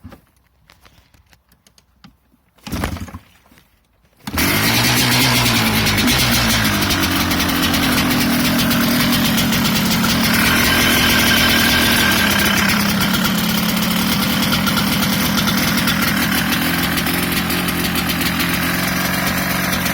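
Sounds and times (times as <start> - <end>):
two-stroke engine idling: 4.3 - 19.9.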